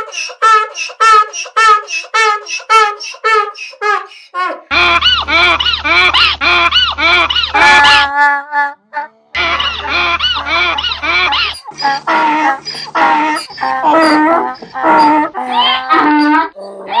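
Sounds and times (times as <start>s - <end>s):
low steady hum: 4.7s - 8.1s, 9.4s - 11.5s
rhythmic honking cries: 4.7s - 8.4s, 9.4s - 16.5s.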